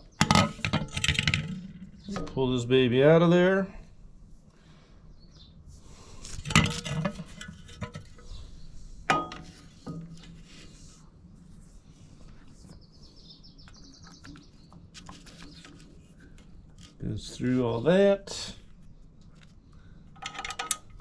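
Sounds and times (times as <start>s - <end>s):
metal parts and tools clanking: 0.1s - 2.4s, 6.4s - 8.4s, 9.1s - 10.2s, 20.2s - 21.0s.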